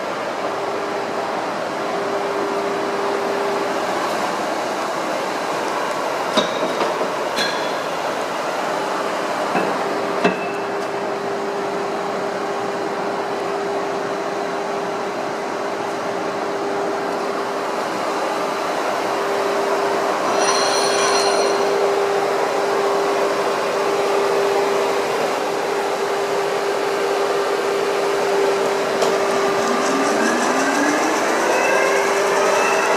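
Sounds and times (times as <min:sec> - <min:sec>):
lathe spindle gear whine: 0:16.5 - 0:32.9
lathe mechanical noise: 0:17.6 - 0:32.9
high metallic ringing: 0:20.2 - 0:22.3.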